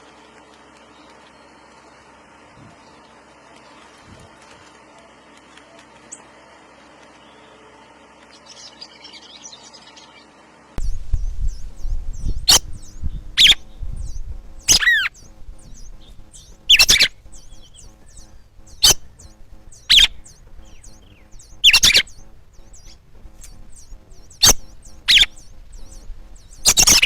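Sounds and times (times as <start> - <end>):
low rumble: 10.8 - 26.7
bird giving sharp alarm calls: 11.5 - 27.0.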